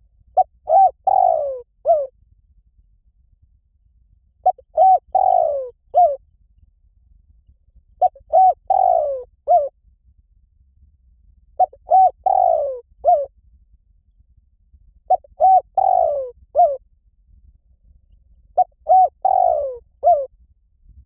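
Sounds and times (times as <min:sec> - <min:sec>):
dove cooing: 0:00.4 - 0:02.1, 0:04.4 - 0:06.2, 0:08.0 - 0:09.7, 0:11.6 - 0:13.3, 0:15.1 - 0:16.8, 0:18.6 - 0:20.3.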